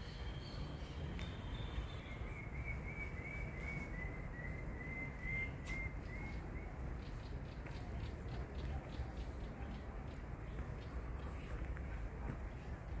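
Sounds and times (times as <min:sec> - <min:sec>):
bird whistling repeated notes: 0:00.0 - 0:06.4.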